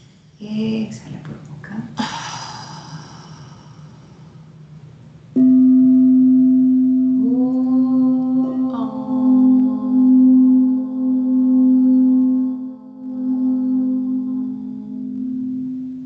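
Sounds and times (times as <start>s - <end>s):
singing bowls ringing: 5.4s - 16.0s.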